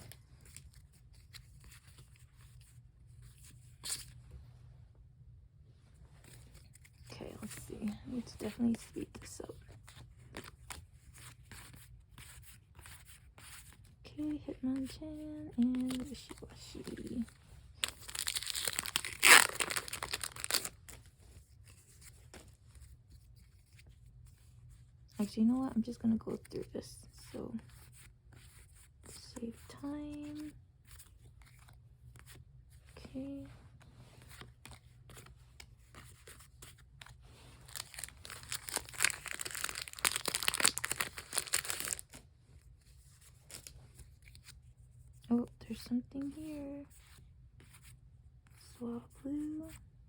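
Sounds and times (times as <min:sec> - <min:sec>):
foil wrapper tearing and crinkling: 0:17.8 - 0:21.0, 0:37.6 - 0:42.2.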